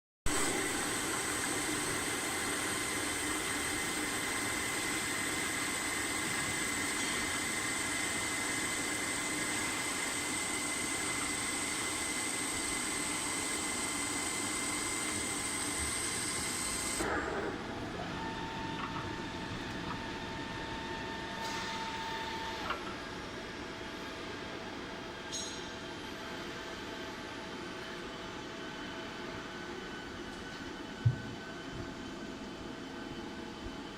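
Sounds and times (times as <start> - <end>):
milling machine whining: 0.3 - 23.3.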